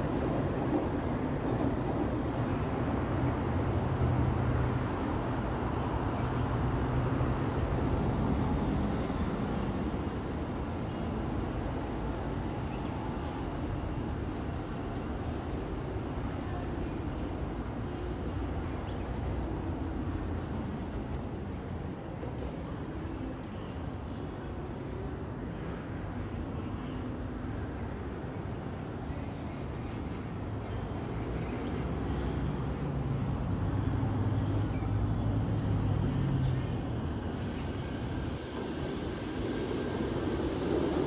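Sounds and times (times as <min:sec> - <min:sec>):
electric train rumble: 0:35.4 - 0:41.0.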